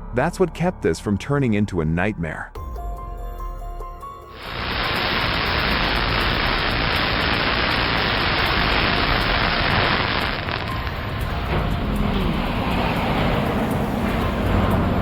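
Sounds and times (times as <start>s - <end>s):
loud static hiss: 4.3s - 11.2s.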